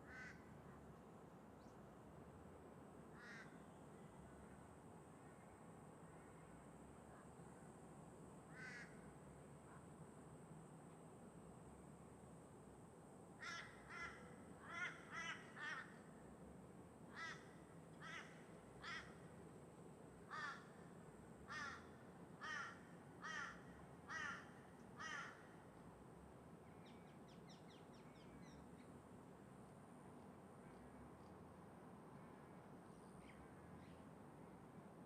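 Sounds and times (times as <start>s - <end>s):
crow cawing: 0.1s - 0.4s, 3.2s - 3.5s, 8.5s - 8.9s, 13.4s - 16.0s, 17.1s - 19.2s, 20.3s - 20.7s, 21.5s - 25.6s.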